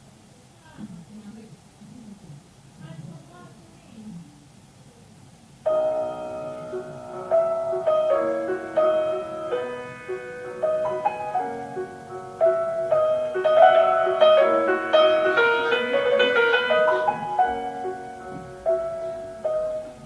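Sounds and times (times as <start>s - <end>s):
solo classical piano: 5.6s - 20.0s.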